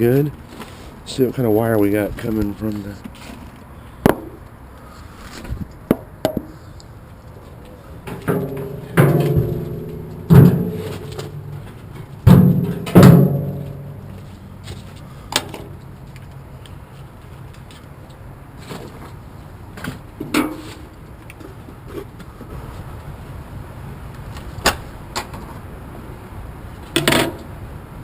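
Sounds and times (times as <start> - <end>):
heavy metallic bangs and clanks: 8.0 - 14.3.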